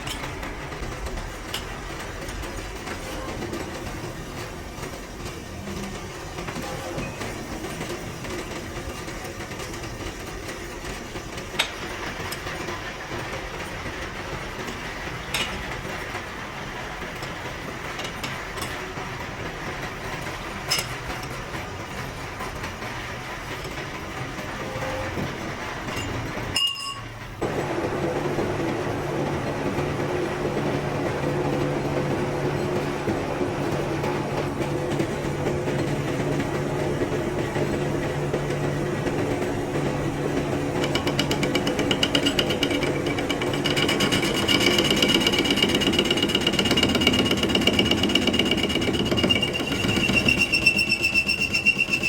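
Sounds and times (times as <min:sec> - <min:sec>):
workshop machinery running: 0:00.0 - 0:52.0
machine hum: 0:27.4 - 0:52.0.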